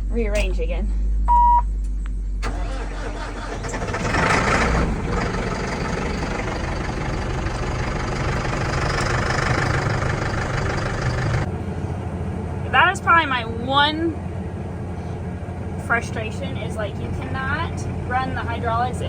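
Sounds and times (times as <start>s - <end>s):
electronic beep: 1.3s - 1.6s
tractor diesel engine starting and idling: 2.4s - 19.0s.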